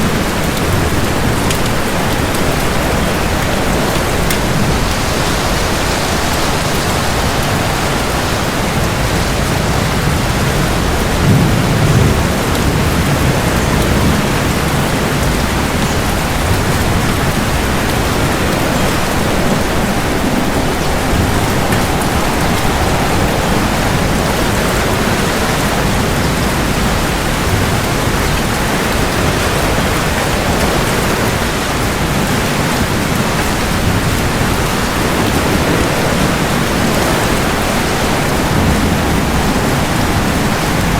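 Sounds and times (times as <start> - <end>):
heavy rain falling: 0.0 - 40.9
low rumble of thunder: 0.0 - 40.9.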